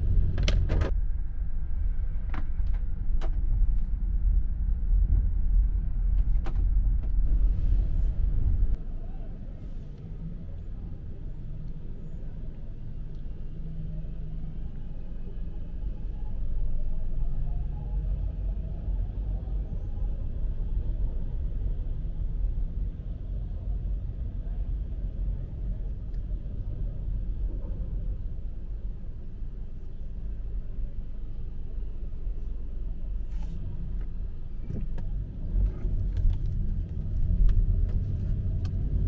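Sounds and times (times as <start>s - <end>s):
street traffic rumble: 0.0s - 39.0s.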